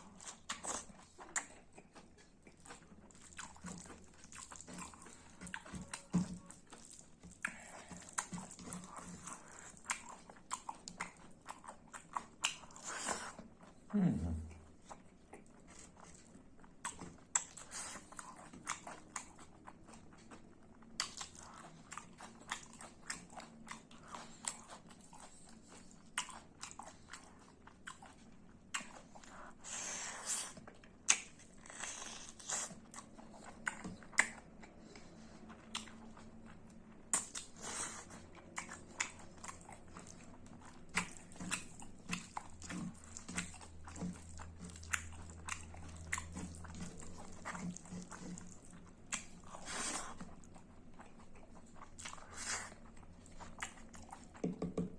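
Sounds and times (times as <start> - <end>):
chewing with wet mouth clicks: 0.0 - 13.9, 14.5 - 54.9.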